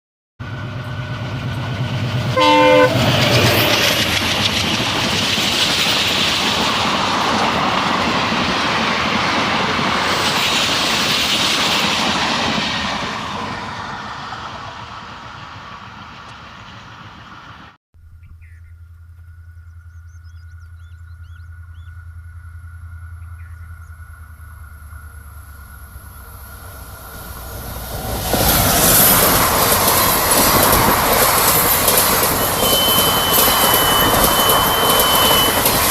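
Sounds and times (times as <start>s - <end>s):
train rushing on track: 0.4s - 17.8s, 22.8s - 35.9s
train horn blast: 2.3s - 3.7s, 32.6s - 35.9s.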